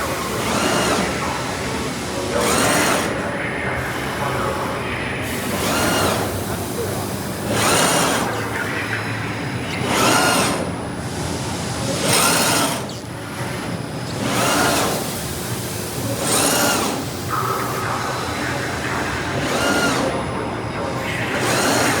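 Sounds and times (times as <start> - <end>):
servo motor whine: 14.0 - 20.4.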